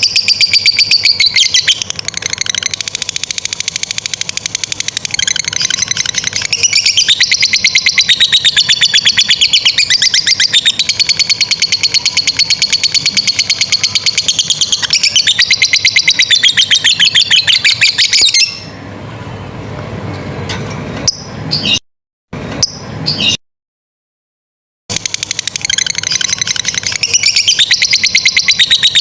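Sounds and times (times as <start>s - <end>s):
lovebird chattering trill: 0.0s - 18.7s, 24.9s - 29.0s.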